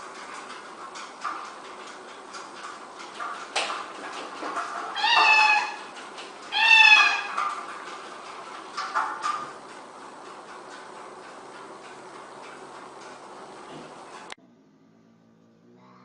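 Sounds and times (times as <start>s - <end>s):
cat meowing: 4.9s - 5.9s, 6.5s - 7.4s.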